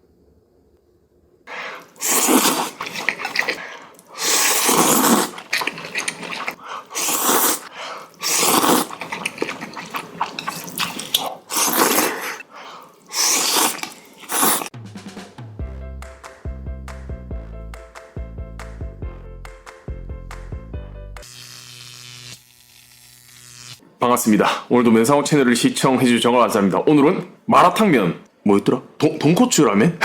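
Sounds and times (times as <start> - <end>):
slurping noodles: 1.5 - 14.8.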